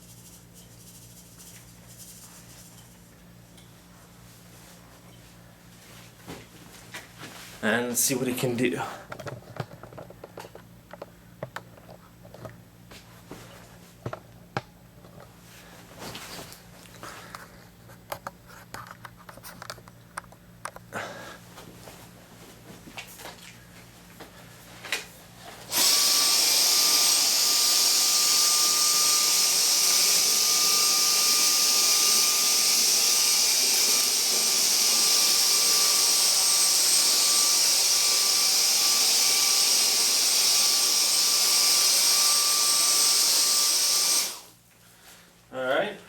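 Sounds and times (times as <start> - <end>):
cordless vacuum whining: 25.7 - 44.5.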